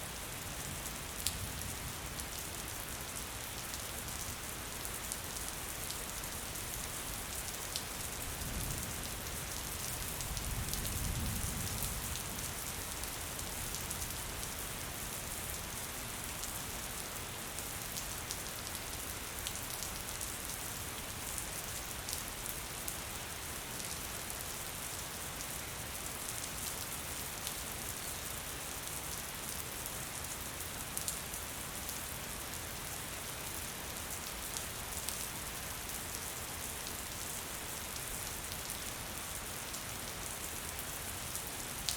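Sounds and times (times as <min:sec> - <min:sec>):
gentle rain falling: 0:00.0 - 0:41.9.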